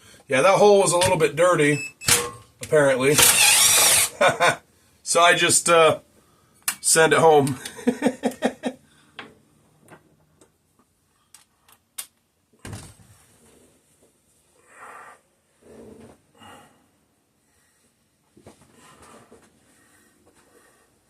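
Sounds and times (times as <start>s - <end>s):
clicks of tools and metal parts: 2.0s - 4.1s.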